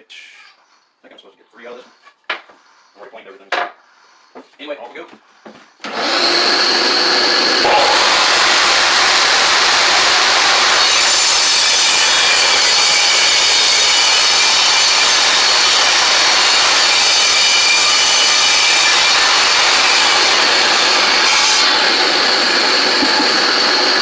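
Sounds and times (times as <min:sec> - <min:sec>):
table saw cutting wood: 0:05.8 - 0:24.0.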